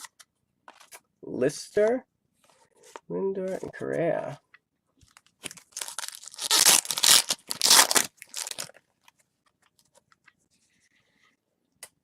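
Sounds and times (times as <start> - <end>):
foil wrapper crinkling and tearing: 5.4 - 8.8.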